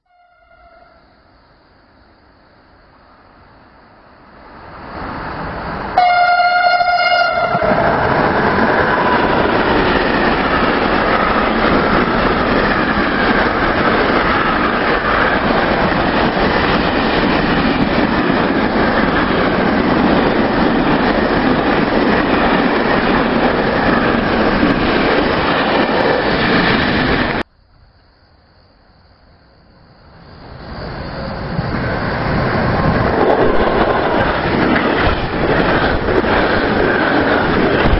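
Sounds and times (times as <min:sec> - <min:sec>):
train approaching: 0:00.0 - 0:27.5, 0:28.6 - 0:37.9
train horn blast: 0:00.1 - 0:01.1, 0:06.0 - 0:07.8
train wheels rolling on track: 0:02.2 - 0:27.5, 0:30.0 - 0:37.9.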